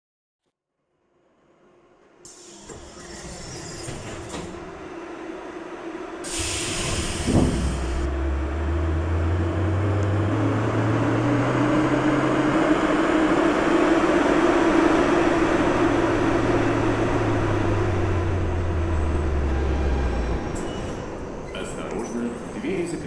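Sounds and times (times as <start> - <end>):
train motor whine: 2.0 - 22.2
wheel and rail rumble: 2.3 - 23.0.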